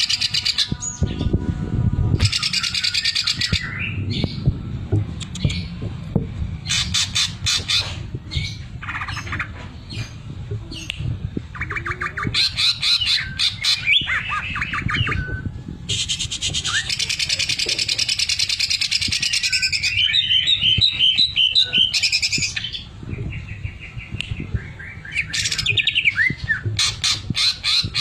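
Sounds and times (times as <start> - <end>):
low rumble: 0.0 - 28.0
bird singing stuttering phrases: 11.5 - 28.0.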